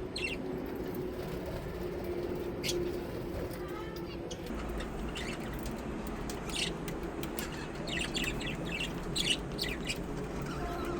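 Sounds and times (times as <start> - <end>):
birds chirping: 4.3 - 5.8, 6.4 - 10.9.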